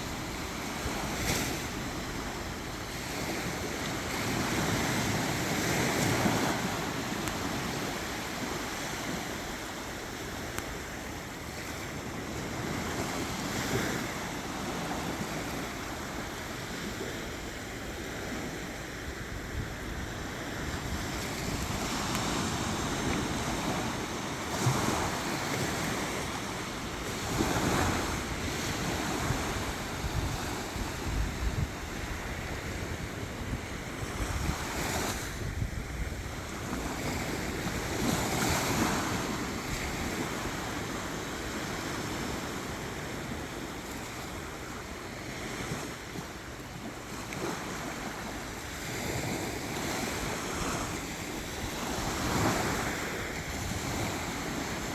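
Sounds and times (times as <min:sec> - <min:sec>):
sea waves washing onto beach: 0:00.0 - 0:54.9
wind buffeting microphone: 0:19.1 - 0:40.8.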